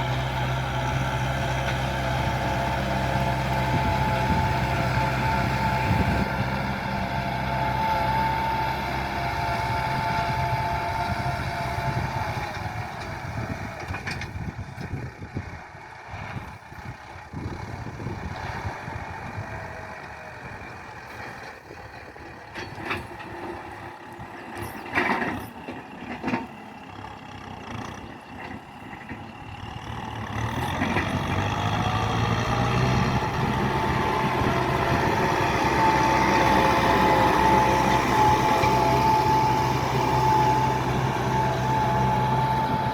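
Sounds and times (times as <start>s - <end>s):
tractor engine running: 0.0s - 42.9s.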